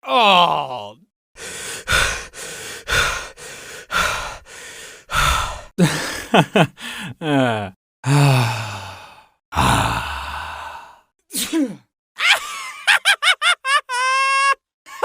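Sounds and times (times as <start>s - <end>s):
person sighing: 0.0s - 11.8s.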